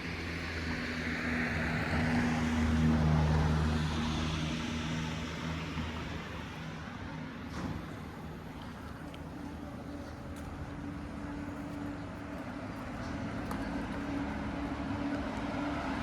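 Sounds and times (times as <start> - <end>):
vehicle passing by: 11.8 - 16.0.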